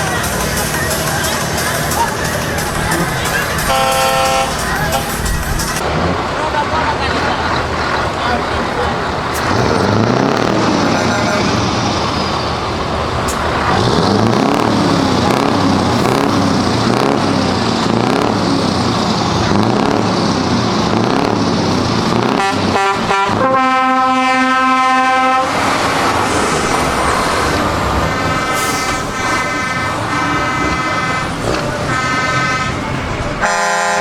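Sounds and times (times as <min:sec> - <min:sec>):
truck engines revving: 0:00.0 - 0:34.0
truck horn blasts: 0:03.6 - 0:05.5, 0:22.2 - 0:25.8, 0:27.9 - 0:34.0.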